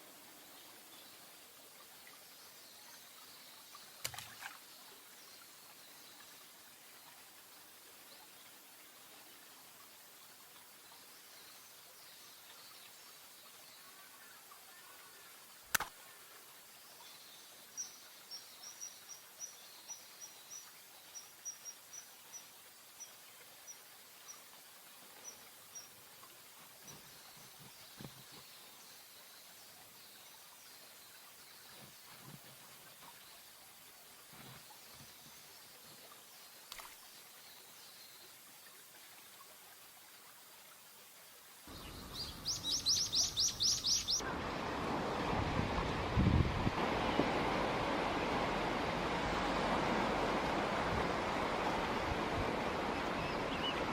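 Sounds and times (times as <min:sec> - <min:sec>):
faint outdoor background noise: 0:00.0 - 0:53.9
sharp click: 0:15.7 - 0:15.9
bird calling: 0:41.8 - 0:44.2
rushing wind-like noise: 0:44.4 - 0:53.9.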